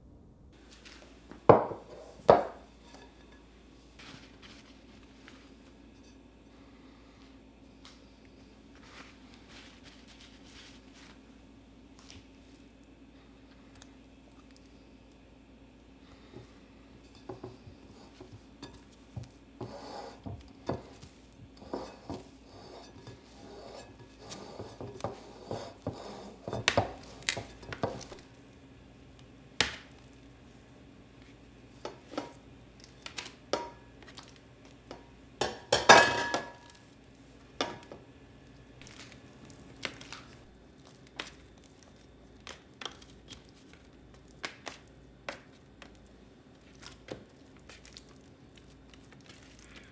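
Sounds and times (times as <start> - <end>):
kitchenware clattering: 1.2 - 3.6, 17.0 - 28.3, 31.8 - 36.9, 37.6 - 38.1
dishes clinking and knocking: 1.3 - 3.5, 16.4 - 28.2, 33.5 - 34.0, 34.9 - 36.8, 37.6 - 38.0.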